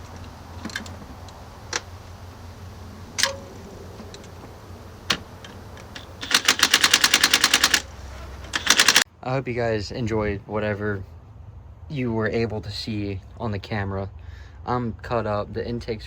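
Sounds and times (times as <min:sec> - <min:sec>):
sharp metal clicks and taps: 0:05.1 - 0:07.9, 0:08.6 - 0:09.0
ratchet wrench clicking: 0:05.8 - 0:07.9, 0:08.6 - 0:09.0.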